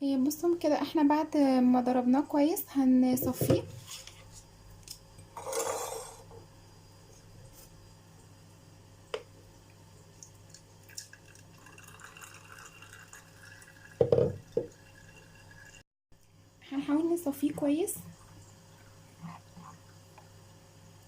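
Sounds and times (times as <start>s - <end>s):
trickling and dripping: 9.6s - 15.8s
batter pouring: 10.1s - 15.8s.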